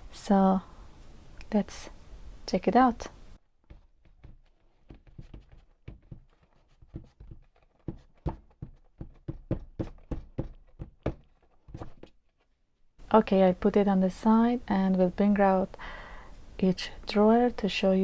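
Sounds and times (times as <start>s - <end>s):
knocks and taps of package handled: 3.6s - 12.2s.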